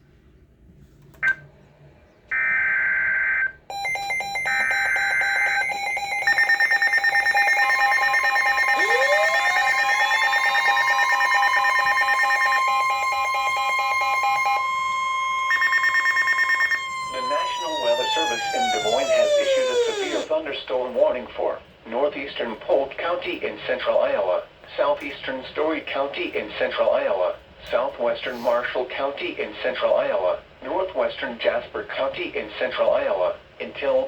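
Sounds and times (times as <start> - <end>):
steady alarm tones: 2.3 - 20.3
data tone bursts: 2.4 - 20.3
tone sliding up: 14.6 - 20.3.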